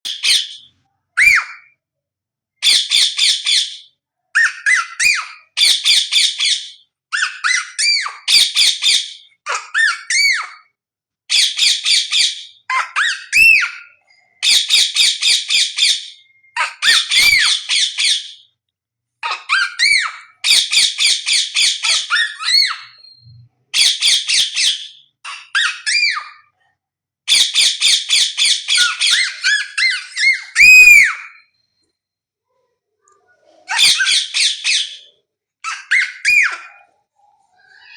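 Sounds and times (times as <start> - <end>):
parrot whistled notes: 0.1 - 1.7, 27.3 - 31.8
parrot squawking: 0.1 - 1.8, 2.6 - 18.4, 19.2 - 26.6, 27.3 - 31.6, 33.1 - 37.9.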